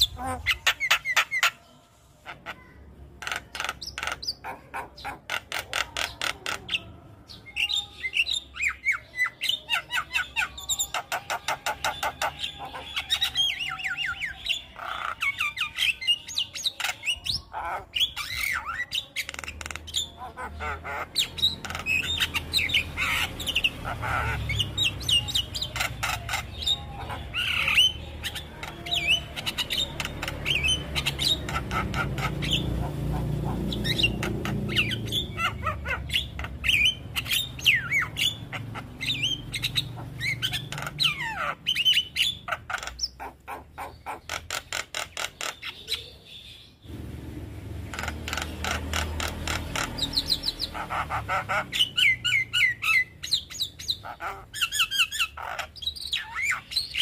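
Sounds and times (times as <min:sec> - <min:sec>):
myna bird singing and chattering: 0:00.0 - 0:57.0.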